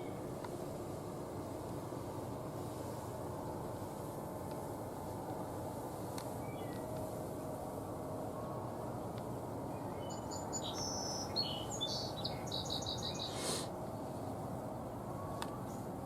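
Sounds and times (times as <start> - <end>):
songbird singing: 0.0 - 0.3, 6.3 - 7.1, 8.1 - 13.6
low background noise: 0.0 - 16.0.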